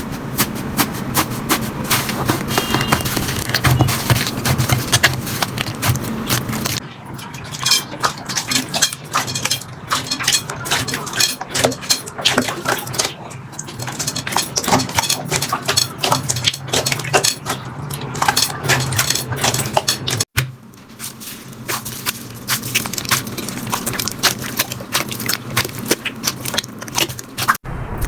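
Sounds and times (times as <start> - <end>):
slime crackling and popping: 21.0 - 27.6.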